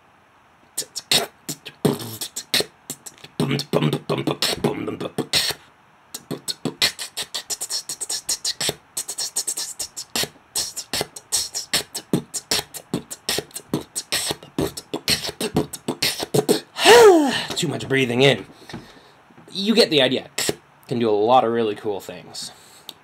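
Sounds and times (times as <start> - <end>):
beatboxing hi-hat sounds: 0.8 - 16.8, 20.2 - 20.6.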